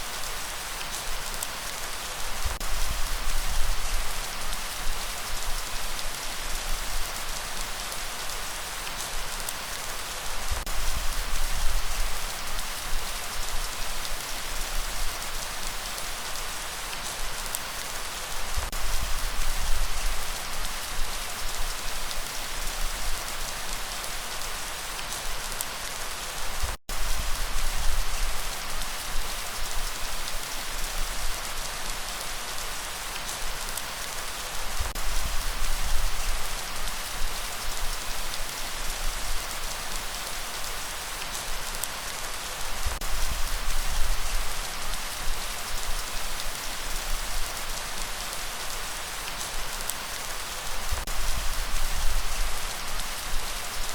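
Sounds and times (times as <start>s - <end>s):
light rain falling: 0.0s - 53.9s
low rumble of breeze: 2.2s - 8.1s, 34.6s - 40.6s, 50.6s - 53.9s.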